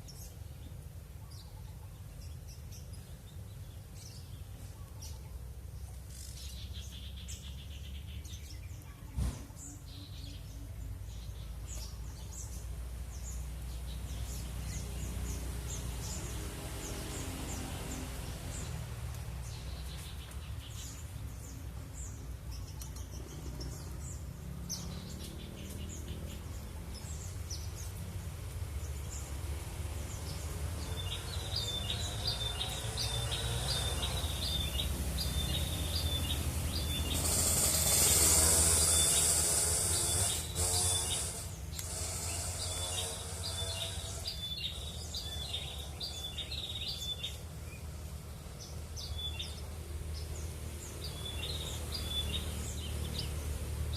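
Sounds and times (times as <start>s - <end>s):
small birds chirping: 0.0s - 53.9s
loud high hiss: 30.7s - 45.2s.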